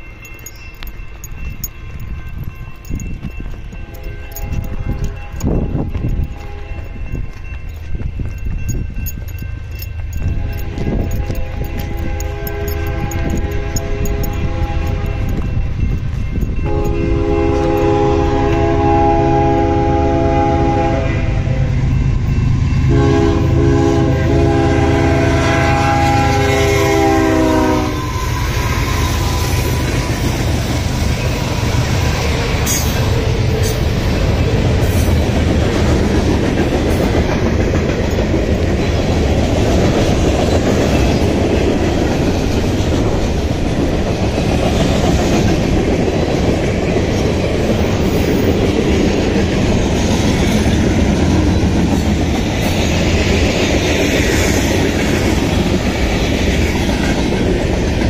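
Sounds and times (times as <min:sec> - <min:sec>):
locomotive engines droning: 0:00.0 - 0:58.0
steel wheels on rails: 0:00.0 - 0:58.0
locomotive air horn blasts: 0:10.3 - 0:15.3, 0:16.6 - 0:21.8, 0:22.9 - 0:29.5.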